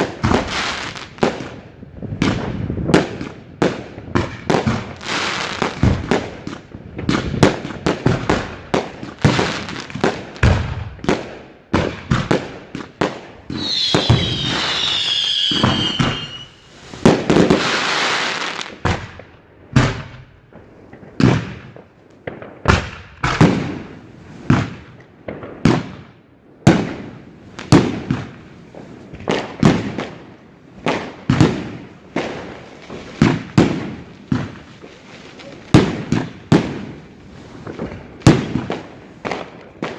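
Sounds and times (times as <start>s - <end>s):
firework crackle: 0.0s - 26.1s, 26.7s - 39.9s
firework bangs: 0.0s - 39.9s
firework whistle: 13.5s - 18.4s.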